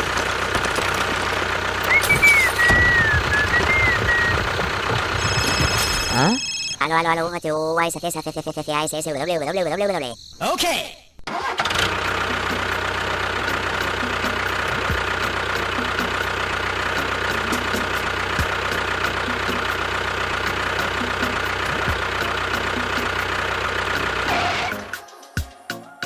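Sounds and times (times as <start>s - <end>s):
motor whining: 0.0s - 6.8s.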